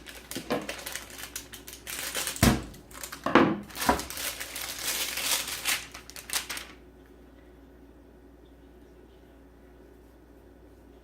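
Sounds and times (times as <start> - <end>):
packaging crinkling: 0.0 - 6.8.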